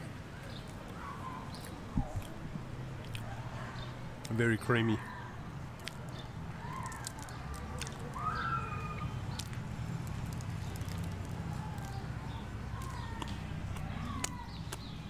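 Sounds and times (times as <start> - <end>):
low outdoor background hum: 0.0 - 15.0
chewing sponge cake: 0.5 - 4.4, 5.8 - 15.0
wet mouth clicks: 1.5 - 2.4, 3.0 - 3.3, 5.8 - 8.2, 9.3 - 12.0, 12.7 - 14.9.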